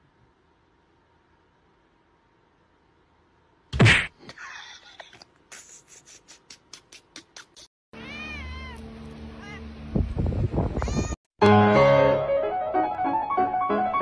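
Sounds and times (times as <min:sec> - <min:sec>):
cat meowing: 0:08.0 - 0:09.7, 0:10.8 - 0:11.2.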